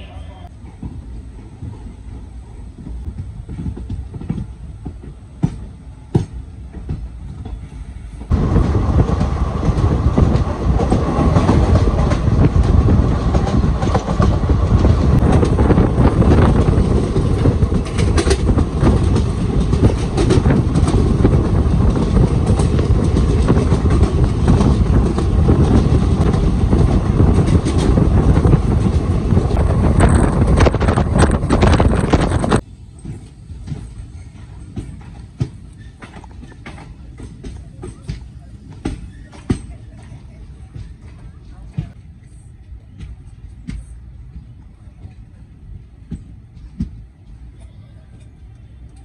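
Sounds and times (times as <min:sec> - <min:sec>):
train rumbling: 0:00.0 - 0:49.0
wheels clicking over rail joints: 0:02.8 - 0:42.0.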